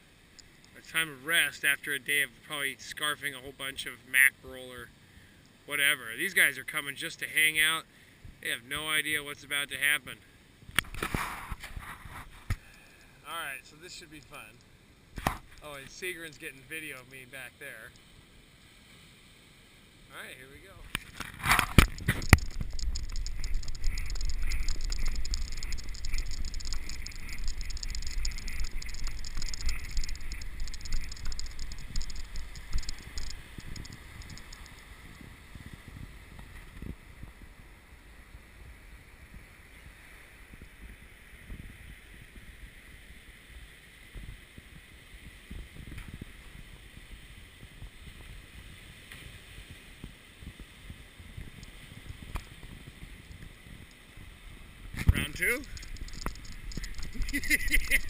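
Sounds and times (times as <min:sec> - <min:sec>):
wind buffeting microphone: 0:21.0 - 0:37.6, 0:39.3 - 0:43.2, 0:44.1 - 0:58.0.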